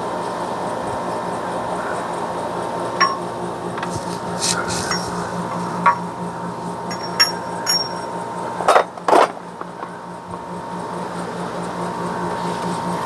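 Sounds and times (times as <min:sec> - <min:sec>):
steady hum: 0:00.0 - 0:13.0
light metallic clinks: 0:03.0 - 0:05.2, 0:06.8 - 0:09.0
metal parts scraping: 0:03.8 - 0:06.0.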